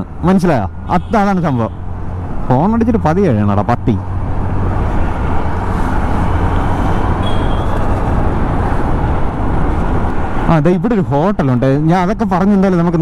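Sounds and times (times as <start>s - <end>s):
traffic: 0.0s - 13.0s
wind buffeting microphone: 4.1s - 10.5s.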